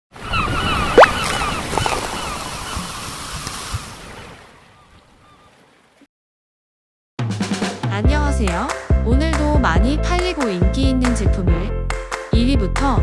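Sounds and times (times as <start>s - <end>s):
ocean waves: 0.1s - 6.0s
birds calling: 0.2s - 5.9s.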